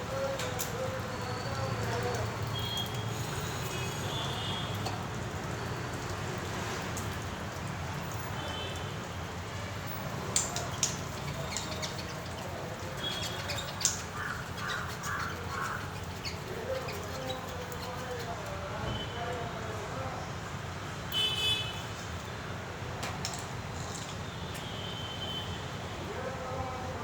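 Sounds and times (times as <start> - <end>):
birds calling: 10.4 - 18.5.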